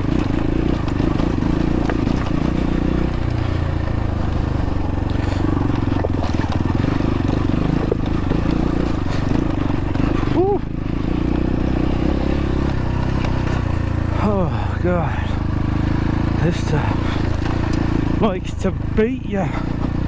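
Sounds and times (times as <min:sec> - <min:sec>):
bike knocking against rocks: 0:00.0 - 0:04.2, 0:04.8 - 0:09.8
dirt bike engine revving: 0:00.0 - 0:20.0.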